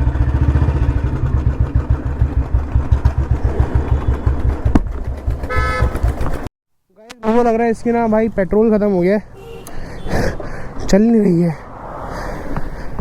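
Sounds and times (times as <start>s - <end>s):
motorcycle engine thumping: 0.6s - 6.5s.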